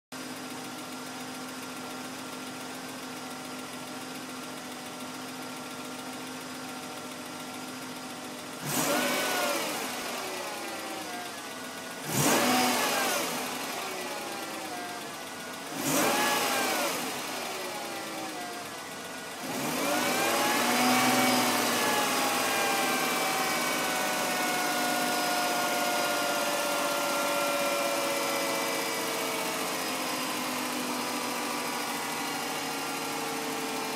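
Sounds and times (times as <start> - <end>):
car engine idling and revving: 0.1 - 33.9.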